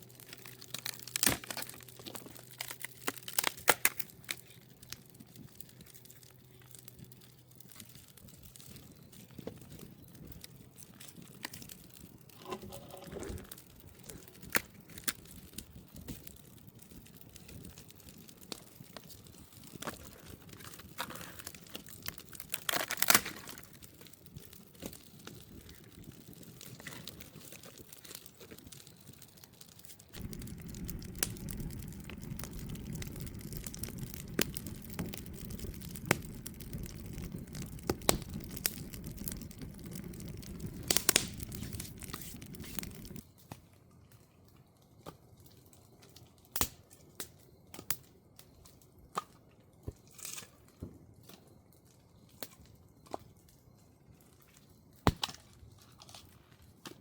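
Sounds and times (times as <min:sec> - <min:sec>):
crinkling and rustling handling: 0:00.0 - 0:16.3, 0:17.0 - 0:31.4, 0:39.6 - 0:44.3, 0:49.9 - 0:57.0.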